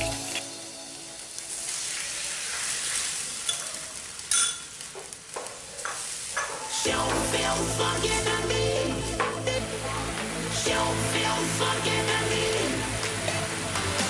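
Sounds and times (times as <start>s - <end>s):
food sizzling in hot oil: 0.0s - 8.5s.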